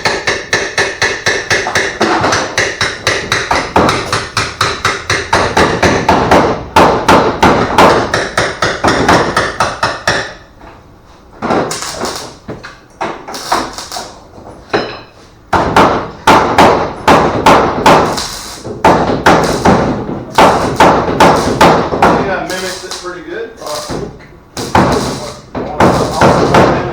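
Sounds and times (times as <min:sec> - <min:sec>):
hammer blows: 0:15.5 - 0:26.9.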